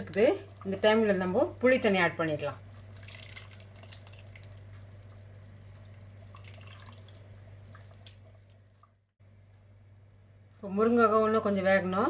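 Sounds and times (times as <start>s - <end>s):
steady low hum: 0.0s - 12.0s
liquid dripping and splashing in a pot: 2.6s - 9.1s.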